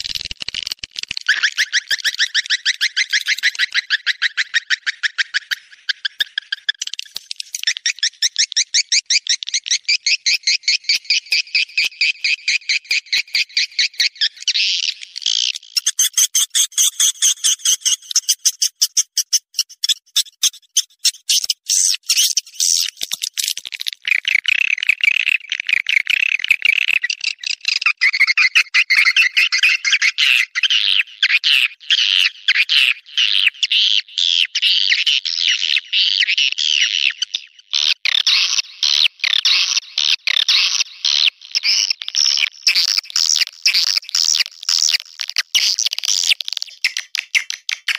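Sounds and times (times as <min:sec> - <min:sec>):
swiftlets chirping and twittering: 0:01.3 - 0:24.2.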